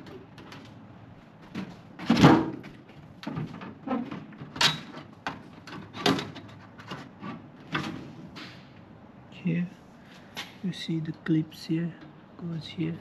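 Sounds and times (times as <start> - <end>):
microwave parts knocking and clattering: 0.0 - 8.8.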